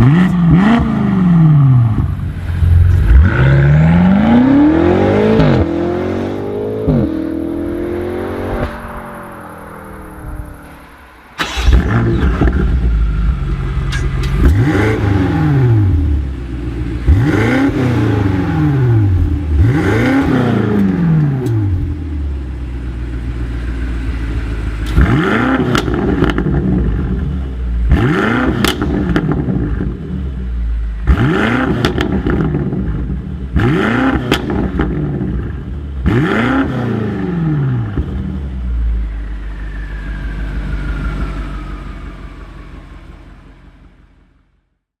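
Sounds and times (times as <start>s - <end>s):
car engine revving: 0.0s - 44.3s
exhaust crackles and pops: 28.0s - 30.0s.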